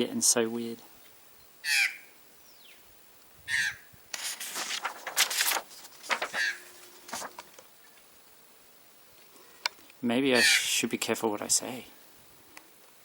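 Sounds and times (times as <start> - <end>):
harsh bird calls: 1.6 - 2.8, 6.3 - 6.8, 10.3 - 10.7.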